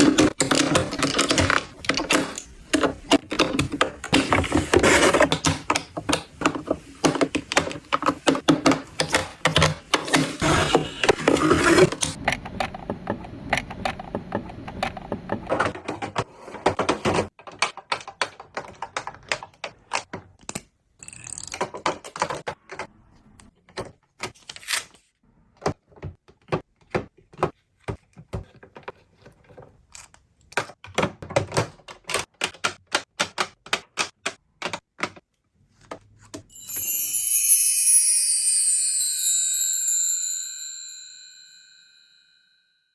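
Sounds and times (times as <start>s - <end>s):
plastic toy pieces clicking: 17.4s - 22.5s
high bright chime: 36.5s - 42.9s.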